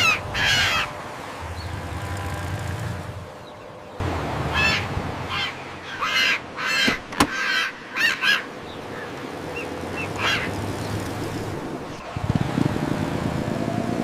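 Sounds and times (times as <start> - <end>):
squawking bird calls: 0.0 - 1.0, 4.5 - 10.8.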